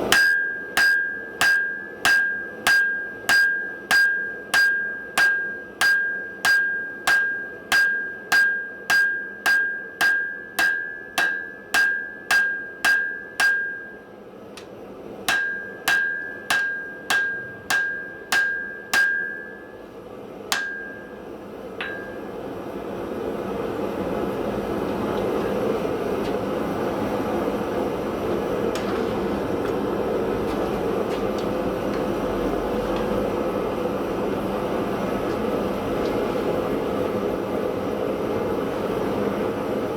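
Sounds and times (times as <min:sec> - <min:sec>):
hammer blows on an anvil: 0:00.0 - 0:14.1, 0:15.3 - 0:19.9, 0:20.5 - 0:22.4.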